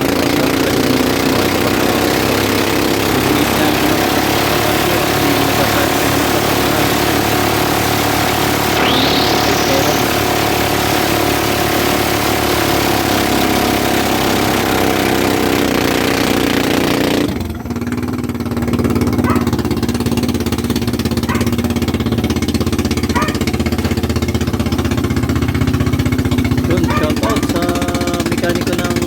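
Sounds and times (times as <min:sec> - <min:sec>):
loud rushing noise: 0:00.0 - 0:14.6
boat engine running: 0:00.0 - 0:29.0.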